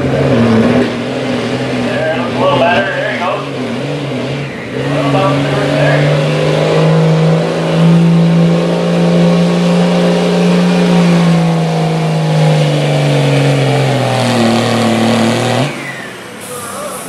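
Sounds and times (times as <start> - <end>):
diesel truck engine at full throttle: 0.0 - 17.0.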